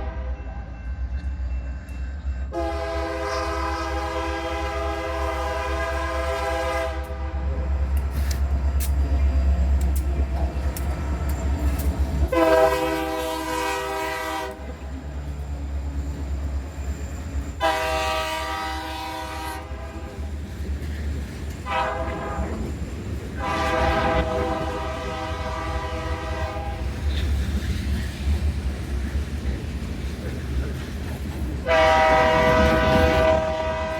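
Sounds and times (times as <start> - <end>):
locomotive air horn blasts: 0.0 - 0.4, 2.5 - 7.7, 12.3 - 14.7, 17.6 - 20.2, 21.6 - 22.6, 23.4 - 26.9, 31.6 - 33.9
low rumble of locomotive engines: 0.0 - 33.9.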